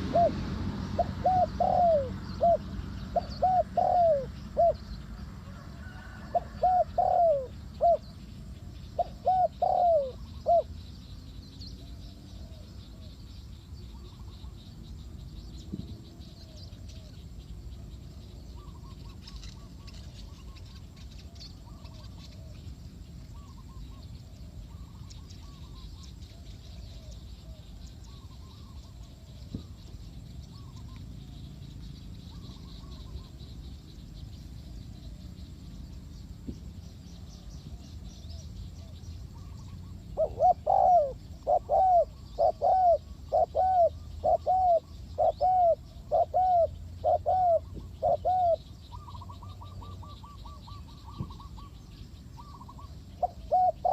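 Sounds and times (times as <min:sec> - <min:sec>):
dove cooing: 0:00.0 - 0:08.2, 0:08.9 - 0:10.8, 0:37.7 - 0:51.8, 0:52.4 - 0:53.9
faint bird calls: 0:00.0 - 0:53.9
low background noise: 0:00.0 - 0:53.9.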